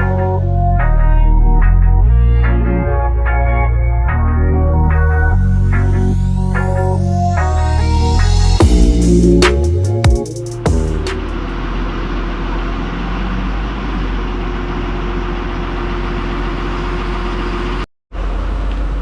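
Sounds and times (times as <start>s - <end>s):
electronic music: 0.0s - 11.9s
diesel engine idling: 10.6s - 19.0s.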